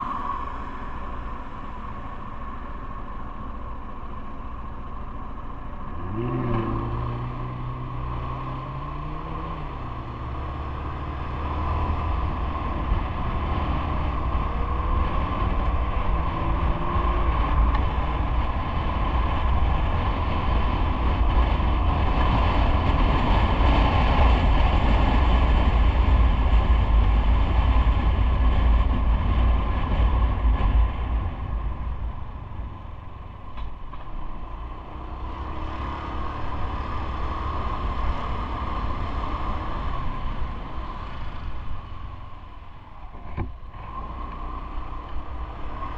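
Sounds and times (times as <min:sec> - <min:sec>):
road rumble: 0:00.0 - 0:45.9
wind noise: 0:00.0 - 0:45.9
engine note rising: 0:05.8 - 0:18.2.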